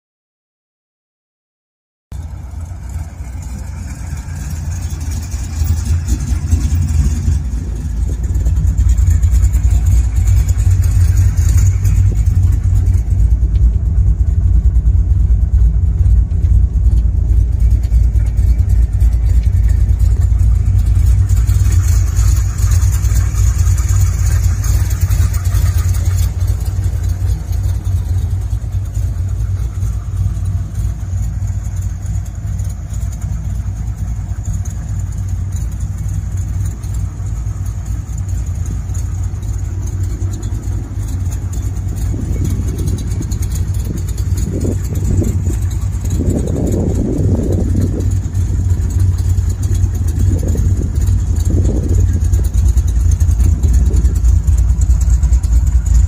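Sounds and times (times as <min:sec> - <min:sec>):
car engine idling: 0:02.1 - 0:56.0.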